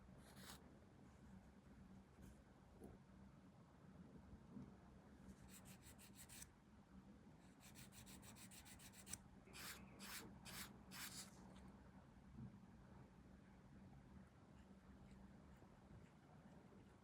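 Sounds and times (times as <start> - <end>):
sanding strokes on plastic: 5.5 - 6.4, 7.6 - 11.3.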